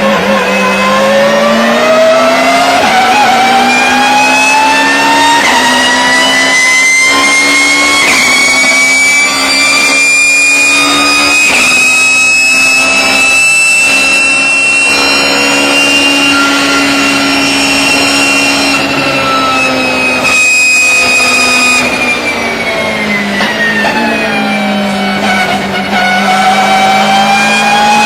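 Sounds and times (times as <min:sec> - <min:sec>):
gearbox whine: 0:00.0 - 0:28.0
race car engine: 0:00.0 - 0:28.0.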